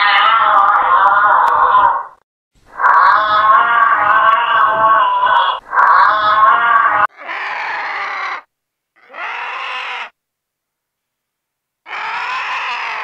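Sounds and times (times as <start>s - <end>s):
vulture calling: 2.8s - 10.1s.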